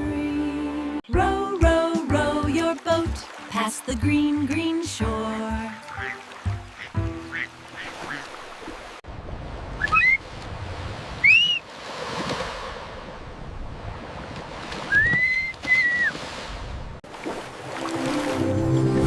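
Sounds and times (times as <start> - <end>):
flowing water: 1.2 - 19.0
high whistled chirps: 9.8 - 10.2, 11.2 - 11.7, 14.9 - 16.1.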